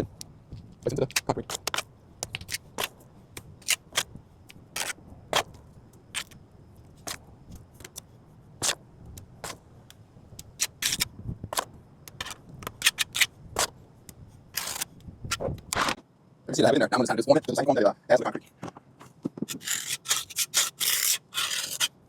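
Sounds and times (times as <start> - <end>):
metal trowel scraping and tapping: 19.4 - 21.9.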